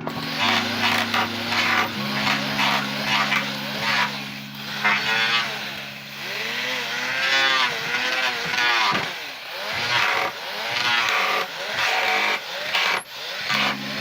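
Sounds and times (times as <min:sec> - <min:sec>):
motor pitch rising and falling: 0:00.0 - 0:10.0, 0:13.4 - 0:14.0.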